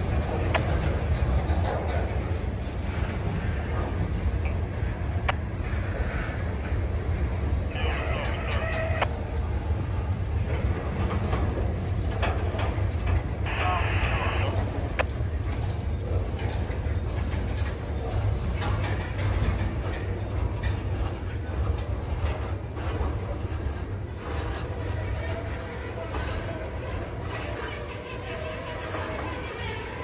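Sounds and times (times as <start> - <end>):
faint high wheel squeal: 5.9 - 9.2, 16.9 - 30.0.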